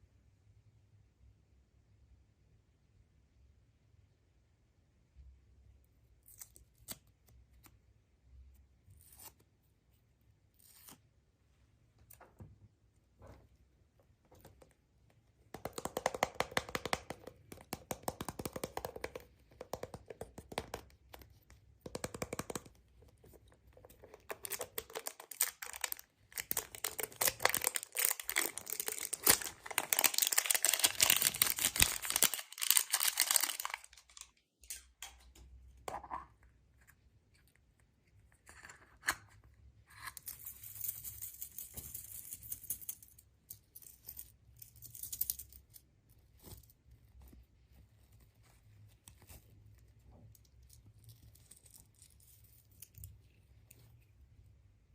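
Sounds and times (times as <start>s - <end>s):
wrapping being torn and crinkled: 24.2s - 34.8s.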